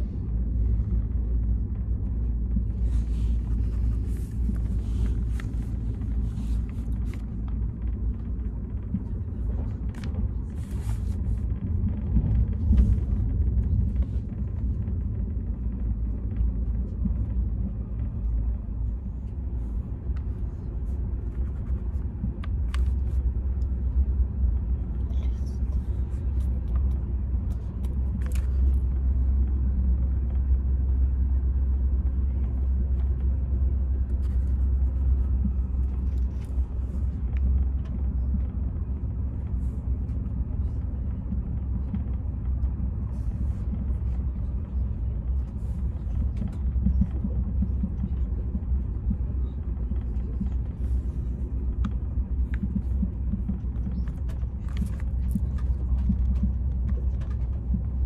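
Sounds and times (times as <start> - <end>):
train rumble: 0.0 - 58.0.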